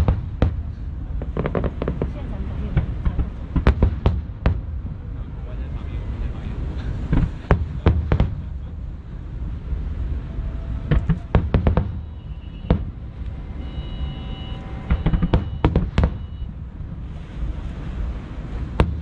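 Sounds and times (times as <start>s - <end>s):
firework shells bursting: 0.0s - 2.2s, 14.9s - 16.3s
steady low rumble: 0.0s - 19.0s.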